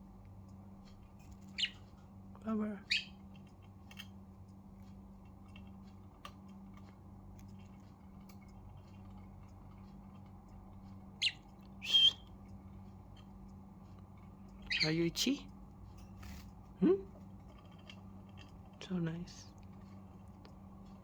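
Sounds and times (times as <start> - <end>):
low steady background hum: 0.0 - 21.0
budgerigar squawking chirps: 1.5 - 1.8, 2.9 - 3.2, 11.2 - 12.2, 14.7 - 15.0.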